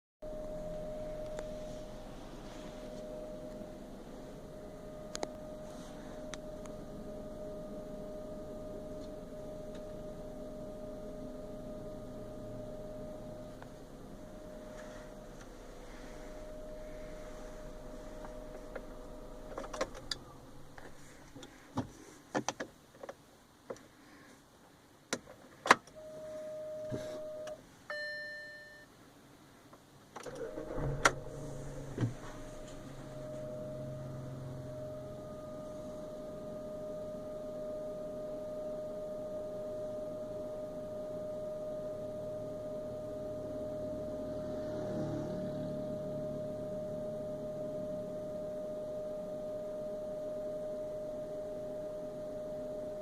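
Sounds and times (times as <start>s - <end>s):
short electronic chime: 0.2s - 7.8s, 30.4s - 37.2s
fuel pump high-pitched whine: 0.2s - 21.9s, 26.0s - 28.2s, 30.2s - 53.0s
car engine idling: 0.2s - 22.2s, 30.2s - 50.0s.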